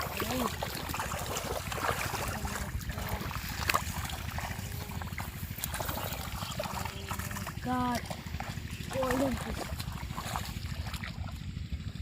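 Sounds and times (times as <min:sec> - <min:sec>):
sharp splash: 0:00.0 - 0:11.4
muddy water sloshing and splashing: 0:00.0 - 0:12.0.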